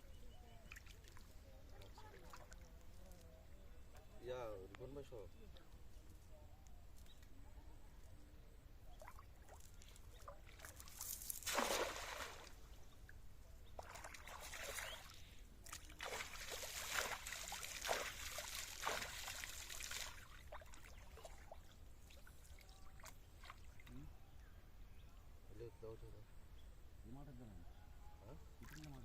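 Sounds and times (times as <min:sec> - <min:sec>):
water splashing and trickling: 0:00.4 - 0:03.2, 0:08.9 - 0:24.0, 0:28.6 - 0:29.0.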